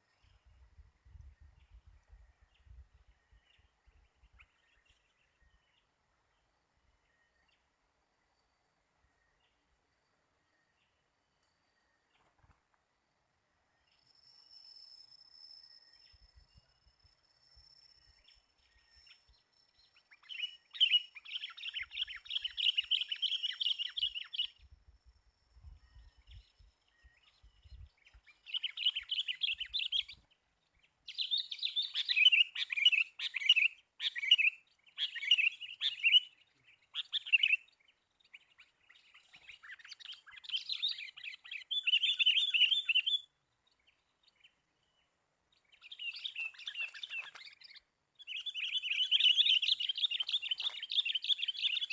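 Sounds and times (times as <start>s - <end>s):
bulbuls chattering song: 17.9s - 24.7s, 25.6s - 51.9s.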